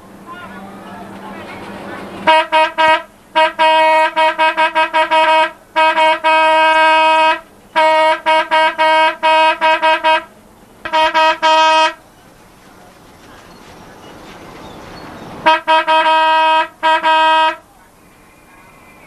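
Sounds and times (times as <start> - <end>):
vehicle horn honking: 2.2 - 12.0, 15.4 - 17.7.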